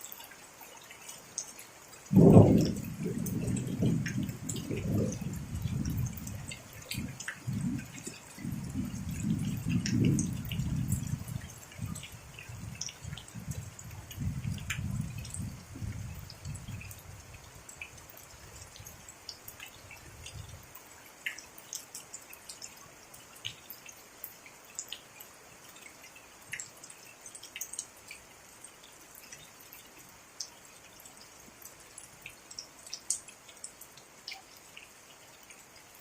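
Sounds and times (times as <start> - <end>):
rain falling: 0.0 - 36.0
raindrops clicking: 0.1 - 28.2, 29.1 - 36.0
thunder rumble: 2.1 - 12.0.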